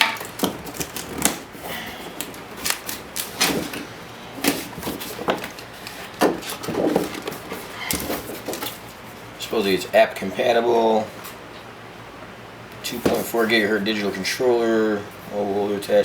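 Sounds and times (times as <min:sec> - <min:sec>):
box being opened: 0:00.0 - 0:08.8
packaging crinkling and clicks: 0:00.0 - 0:08.8.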